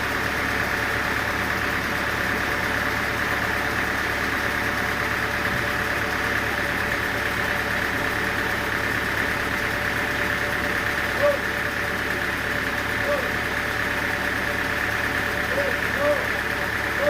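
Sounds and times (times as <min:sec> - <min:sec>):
sawmill machinery droning: 0:00.0 - 0:17.0
high machine whine: 0:04.3 - 0:17.0.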